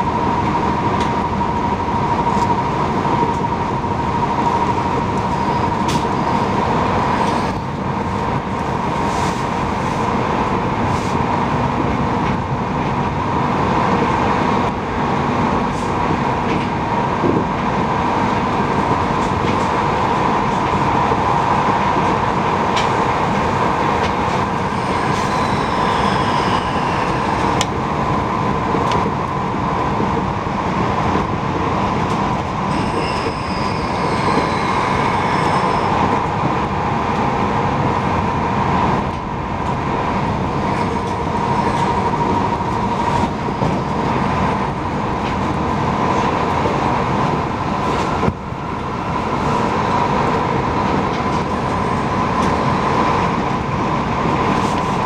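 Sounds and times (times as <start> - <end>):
train wheels rumbling on rail: 0.0 - 55.0
faint high squeals: 24.5 - 27.6, 32.7 - 36.2.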